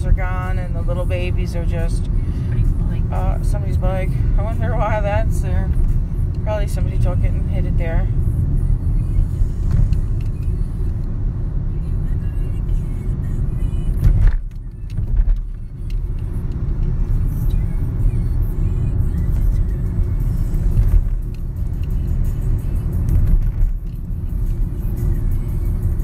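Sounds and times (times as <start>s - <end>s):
road and engine rumble: 0.0s - 26.0s.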